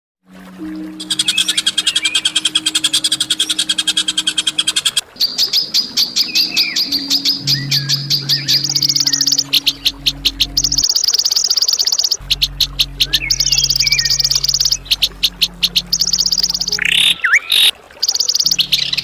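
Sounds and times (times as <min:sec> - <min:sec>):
songbird rapid high notes: 0:00.6 - 0:19.0
steady low hum: 0:06.5 - 0:11.3, 0:12.2 - 0:17.3.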